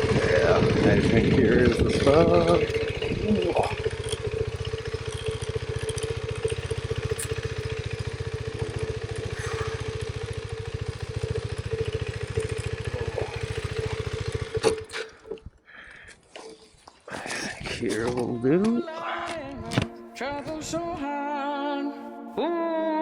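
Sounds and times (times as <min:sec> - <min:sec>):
engine knock as it stops: 0:00.0 - 0:15.2
motorcycle engine idling: 0:00.0 - 0:16.1.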